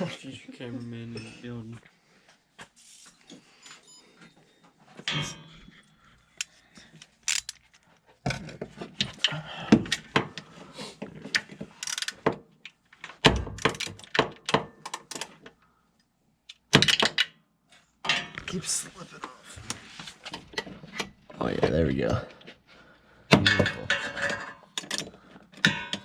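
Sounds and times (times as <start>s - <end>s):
ratchet wrench clicking: 11.8s - 12.2s.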